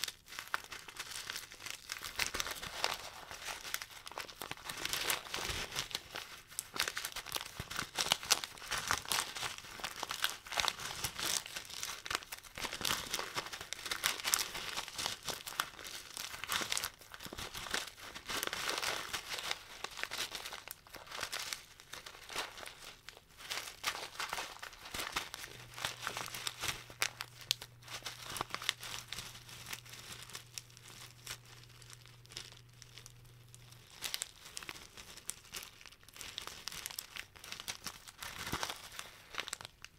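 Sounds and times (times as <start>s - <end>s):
packets crinkling by hand: 0.0s - 39.9s.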